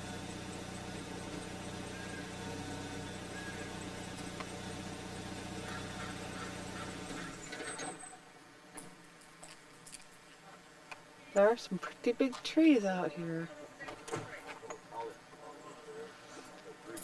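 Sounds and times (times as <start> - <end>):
car engine idling: 0.0 - 7.9.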